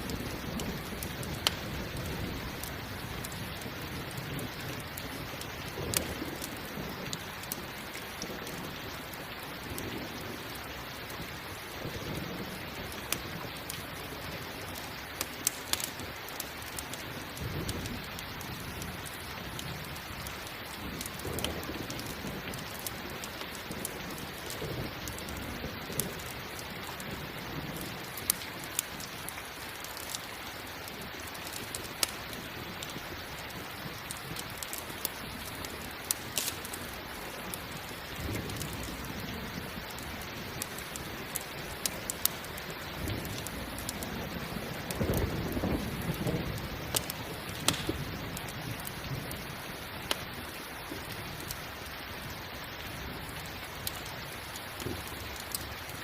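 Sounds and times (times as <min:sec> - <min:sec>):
low rumbles of thunder: 0:00.0 - 0:13.6, 0:36.8 - 0:49.8
campfire crackling pops: 0:00.0 - 0:56.0
heavy rain: 0:00.0 - 0:56.0.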